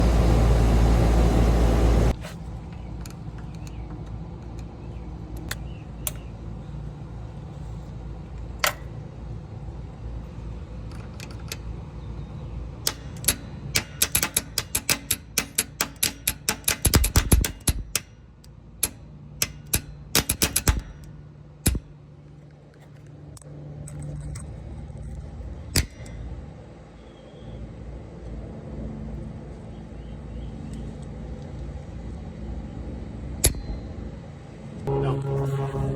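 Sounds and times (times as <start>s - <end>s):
low hum: 0.0s - 13.8s, 31.8s - 35.9s
air conditioner unit humming: 0.0s - 23.8s
sharp clicks: 12.9s - 18.1s.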